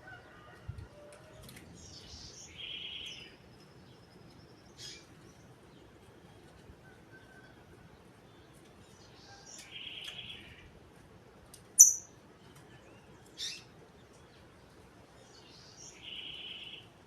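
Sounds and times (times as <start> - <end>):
bird singing: 1.8 - 7.6, 8.2 - 10.7, 11.8 - 14.4, 15.1 - 17.0.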